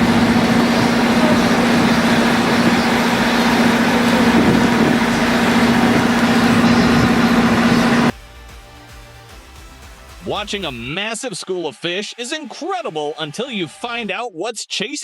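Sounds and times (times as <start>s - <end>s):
loud rushing noise: 0.0s - 8.1s
low motor hum: 0.0s - 8.1s.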